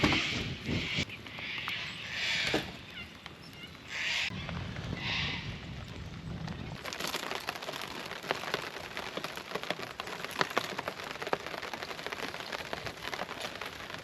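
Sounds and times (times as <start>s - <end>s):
rain falling: 2.8s - 14.0s
raindrops ticking on surface: 2.8s - 14.0s.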